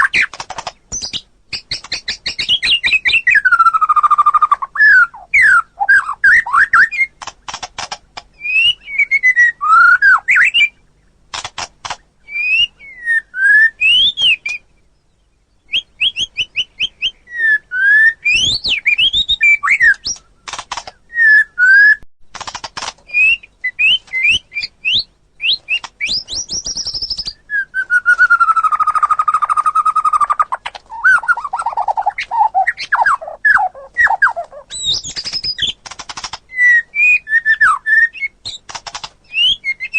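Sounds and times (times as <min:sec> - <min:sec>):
bird singing whistled song: 0:00.0 - 0:07.2, 0:08.4 - 0:11.0, 0:12.2 - 0:22.0, 0:23.1 - 0:35.8, 0:36.5 - 0:39.9
bird clicking rattles: 0:00.2 - 0:02.6, 0:07.2 - 0:08.3, 0:11.3 - 0:12.0, 0:19.9 - 0:21.0, 0:22.3 - 0:23.1, 0:34.9 - 0:36.5, 0:38.5 - 0:39.2.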